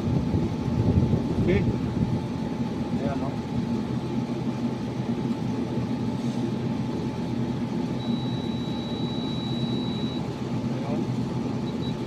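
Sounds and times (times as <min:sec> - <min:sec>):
low steady rumble: 0:00.0 - 0:12.0
high-pitched tester beep: 0:08.0 - 0:10.3, 0:11.6 - 0:12.0.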